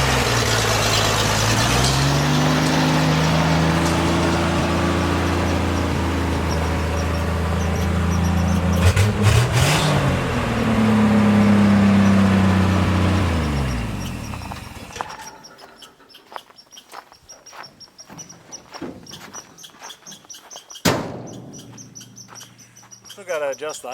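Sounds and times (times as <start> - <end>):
truck engine idling and revving: 0.0 - 23.9.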